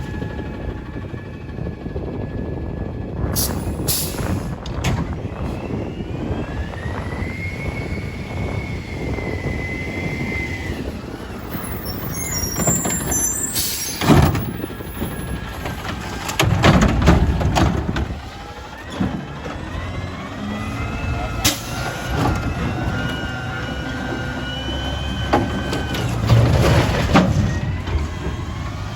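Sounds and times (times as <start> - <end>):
diesel truck engine rumbling: 0.0 - 28.9
high hydraulic whine: 3.4 - 15.9.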